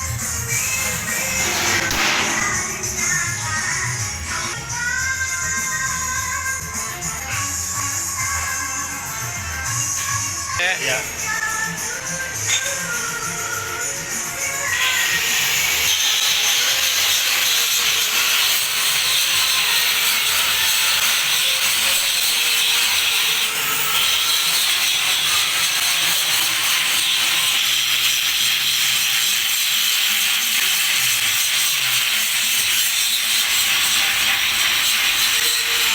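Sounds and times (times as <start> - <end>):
rotary dryer rushing: 0.4 - 4.6.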